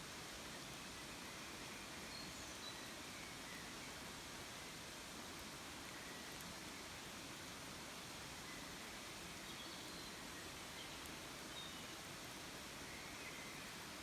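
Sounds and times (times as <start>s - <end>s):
woodland ambience hiss: 0.0s - 14.0s.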